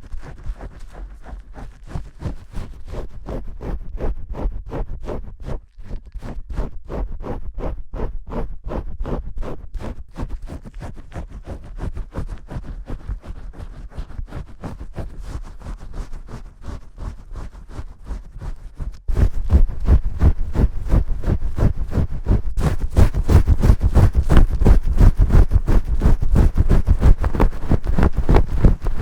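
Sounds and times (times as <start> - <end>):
fingers scrubbing shampoo lather: 0.1 - 3.8, 9.8 - 29.0.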